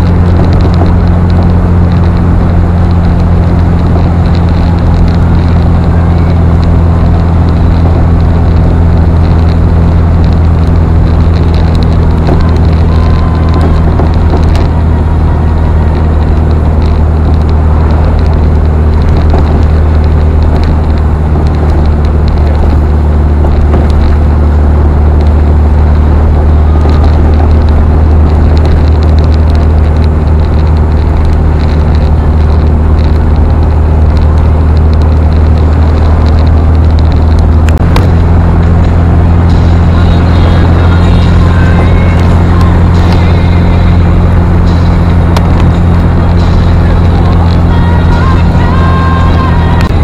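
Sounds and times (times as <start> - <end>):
car engine droning: 0.0 - 50.0
tyre noise on wet road: 0.0 - 50.0.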